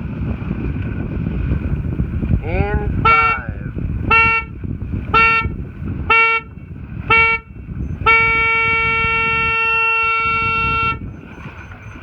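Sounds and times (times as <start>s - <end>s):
starting horn blasts: 2.6s - 11.1s.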